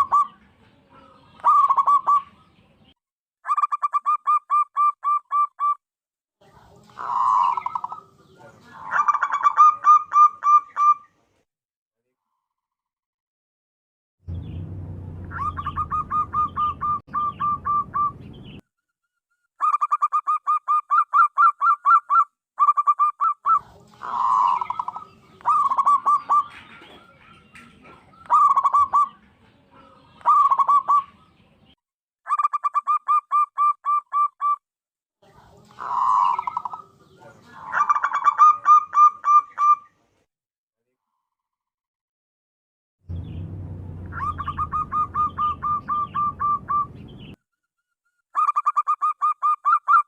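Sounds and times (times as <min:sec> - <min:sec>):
doves cooing: 0:00.0 - 0:02.4, 0:06.9 - 0:11.0, 0:22.6 - 0:31.2, 0:35.6 - 0:39.8, 0:44.1 - 0:47.0
low hum: 0:14.3 - 0:18.2, 0:43.1 - 0:47.2.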